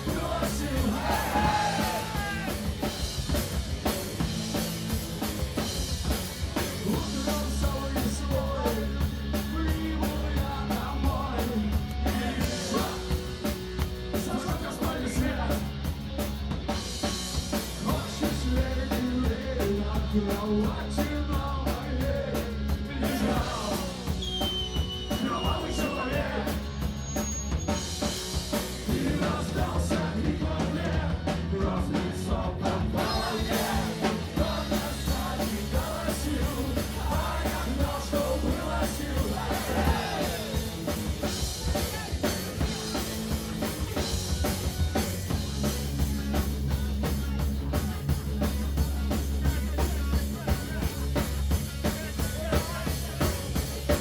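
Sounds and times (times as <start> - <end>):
person singing or shouting: 0.0 - 2.7, 41.6 - 42.5
live punk rock band: 0.0 - 54.0.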